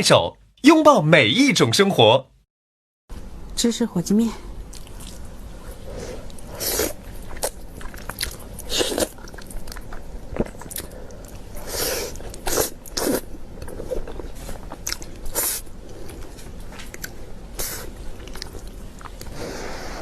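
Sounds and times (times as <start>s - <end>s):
wet chewing and smacking: 6.2s - 11.6s, 13.6s - 17.2s, 18.1s - 19.4s.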